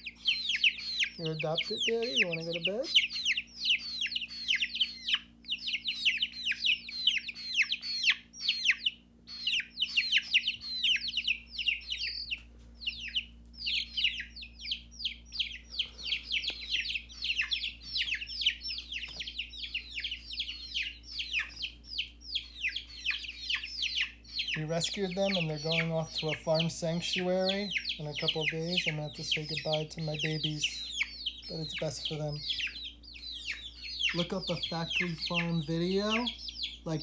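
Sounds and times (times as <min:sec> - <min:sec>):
young chickens peeping: 0:00.0 - 0:37.0.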